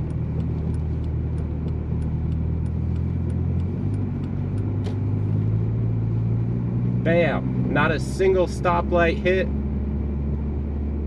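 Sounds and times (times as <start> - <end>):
faint light ticking: 0.0 - 4.9
car engine running while driving: 0.0 - 11.0.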